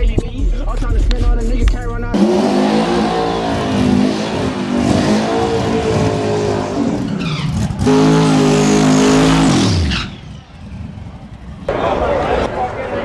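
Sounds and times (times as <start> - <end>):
tyres squealing: 2.2 - 10.8
car engine revving high: 2.2 - 11.8.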